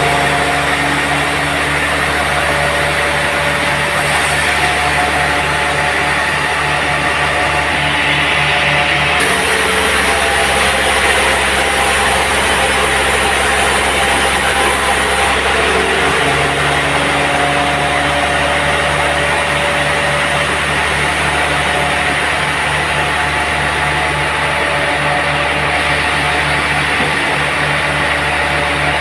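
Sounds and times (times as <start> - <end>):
sawmill machinery humming: 0.0 - 29.0.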